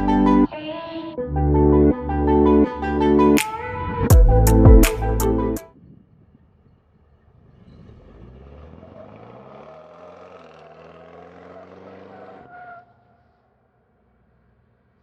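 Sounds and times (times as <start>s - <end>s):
faint car engine running: 5.8s - 15.0s.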